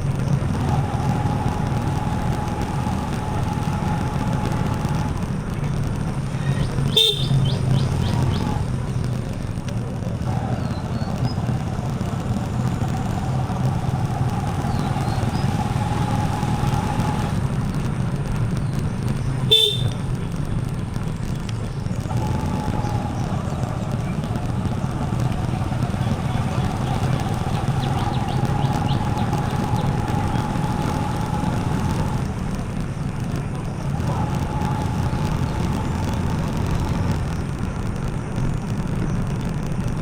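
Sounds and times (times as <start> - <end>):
motorcycle engine running: 0.0 - 40.0
road and wind noise: 0.0 - 40.0
horn toots: 6.4 - 8.7, 19.4 - 20.3.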